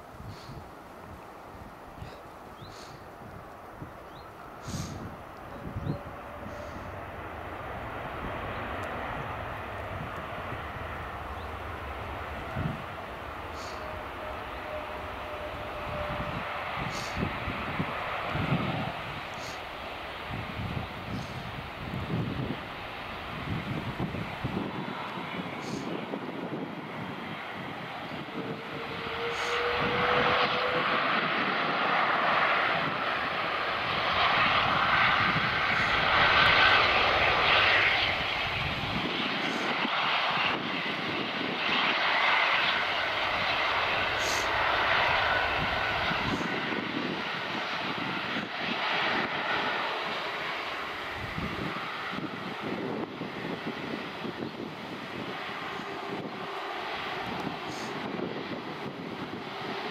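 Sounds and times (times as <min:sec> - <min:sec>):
jet engines passing overhead: 0:00.0 - 0:59.9
faint rising whine: 0:00.7 - 0:25.9.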